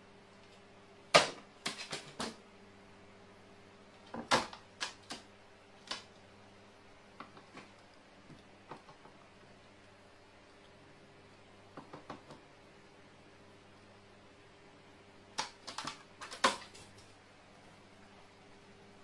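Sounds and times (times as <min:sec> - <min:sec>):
faint steady hum: 0:00.0 - 0:19.0
knocks and clicks on hard surface: 0:08.7 - 0:09.2, 0:11.8 - 0:12.4.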